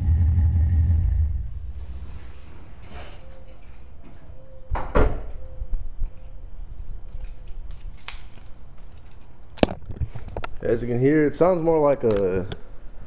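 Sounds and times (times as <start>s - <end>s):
engine revving: 0.0s - 2.1s.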